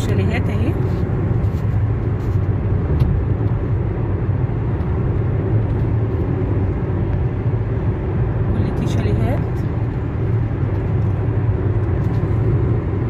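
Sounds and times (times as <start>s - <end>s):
car road noise from cabin: 0.0s - 13.0s.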